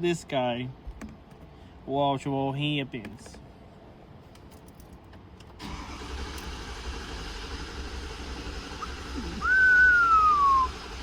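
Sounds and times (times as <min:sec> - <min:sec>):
diesel engine starting and running: 0:05.5 - 0:11.0.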